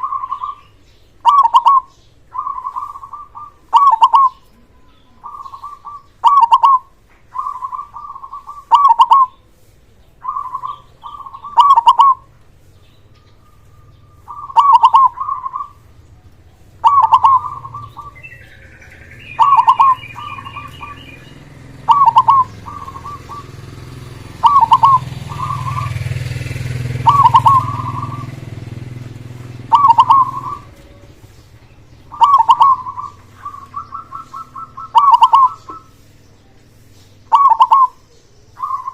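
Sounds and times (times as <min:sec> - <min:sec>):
dove cooing: 0:00.0 - 0:09.4, 0:10.2 - 0:38.9.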